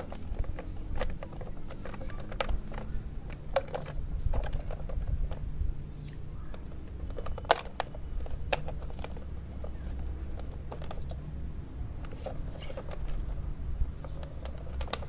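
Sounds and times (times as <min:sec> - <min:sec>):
low steady hum: 0:00.0 - 0:15.0
plastic toy clicks and taps: 0:06.0 - 0:11.2, 0:14.0 - 0:15.0.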